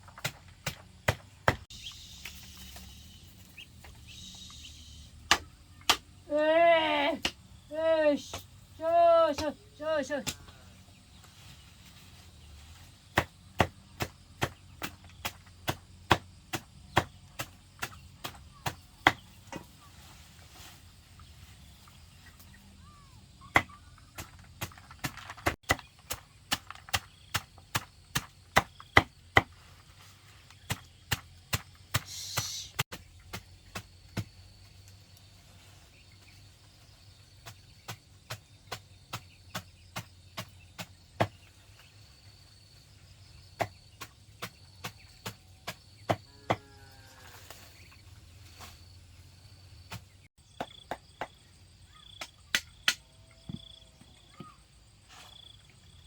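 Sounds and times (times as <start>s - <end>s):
faint insects: 0.0s - 56.0s
sharp chopping strikes: 0.2s - 1.6s, 5.2s - 6.1s.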